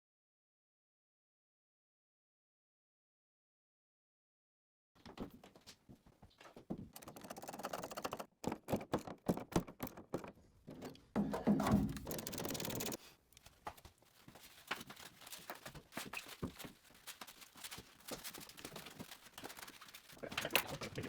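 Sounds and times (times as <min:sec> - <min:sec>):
tools clicking and knocking: 0:06.8 - 0:13.5.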